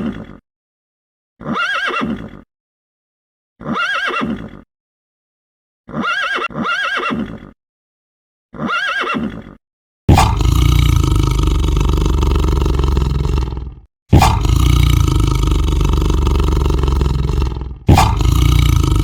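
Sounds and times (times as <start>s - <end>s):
horse whinny: 1.4s - 2.4s, 3.6s - 4.6s, 5.9s - 7.6s, 8.6s - 9.6s
loud animal roars: 10.1s - 19.0s.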